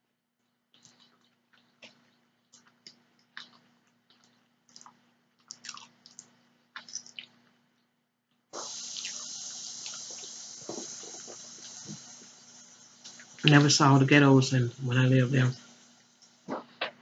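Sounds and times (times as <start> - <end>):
chewing and wet mouth clicks: 0.4 - 7.5
steady hiss: 8.6 - 17.0.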